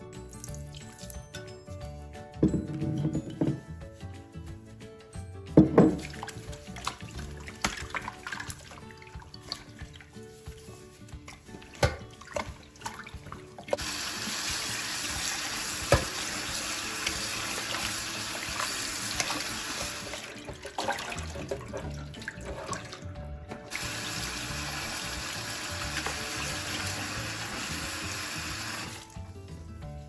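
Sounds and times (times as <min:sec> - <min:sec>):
tap water rushing into bowl: 0:13.6 - 0:29.2.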